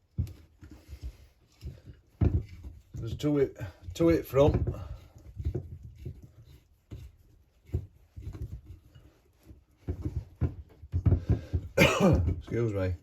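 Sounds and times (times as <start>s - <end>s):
hand tools knocking on metal parts: 9.8s - 13.0s.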